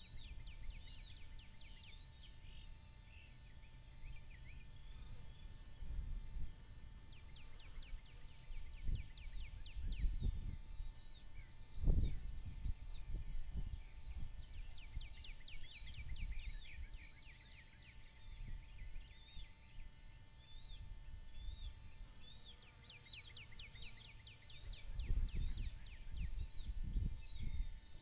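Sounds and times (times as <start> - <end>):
bird singing: 0.0 - 28.0
wind rumble on microphone: 5.0 - 17.2, 18.2 - 19.8, 24.6 - 28.0.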